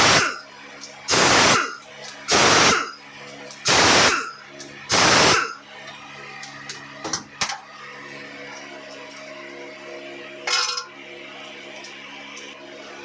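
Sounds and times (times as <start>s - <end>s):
steady low hum: 0.0s - 13.0s
metal tools clinking on engine parts: 8.5s - 9.4s, 10.4s - 10.9s.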